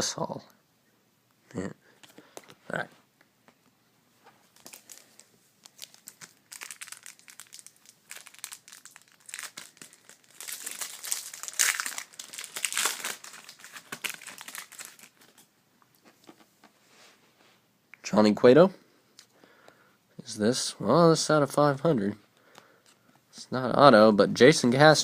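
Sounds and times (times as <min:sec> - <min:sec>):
foil wrapper tearing and crinkling: 0:04.5 - 0:15.4.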